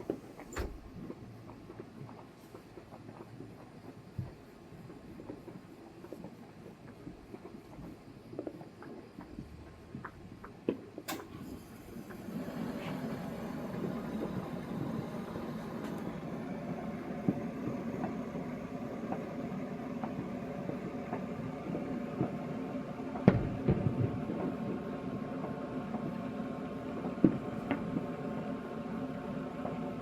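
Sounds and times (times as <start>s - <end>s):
small firework pops: 0.0s - 12.3s, 13.7s - 22.5s, 23.1s - 24.8s, 27.0s - 28.0s
steady low hum: 11.2s - 30.0s
distant fireworks bangs: 12.8s - 29.9s.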